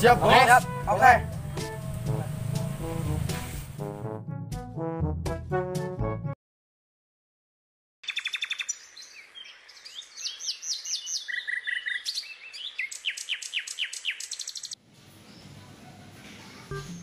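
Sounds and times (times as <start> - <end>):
birds chirping: 8.0 - 17.0.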